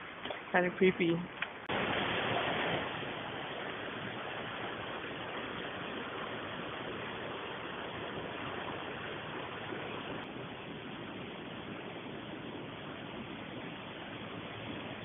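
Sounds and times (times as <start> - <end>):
steady rushing noise: 1.5 - 15.0.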